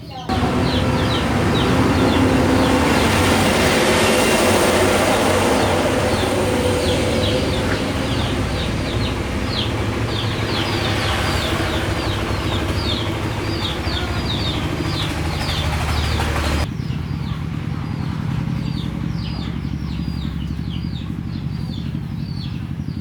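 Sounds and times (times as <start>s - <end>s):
motor humming: 0.3s - 16.6s.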